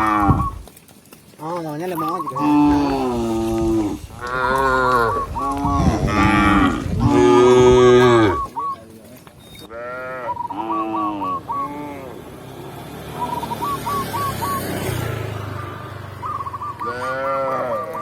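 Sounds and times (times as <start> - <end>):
cows mooing: 0.0 - 0.6, 1.4 - 8.6, 9.7 - 14.2, 14.8 - 18.0.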